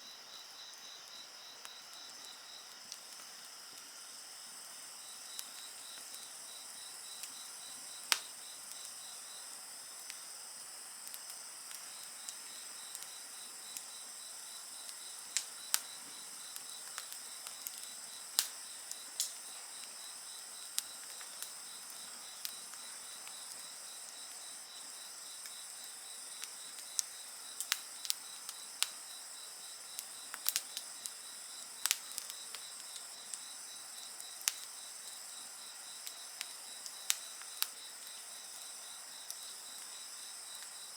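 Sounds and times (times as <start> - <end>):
insects chirring: 0.0 - 40.9
wood fire crackling and popping: 1.6 - 40.8.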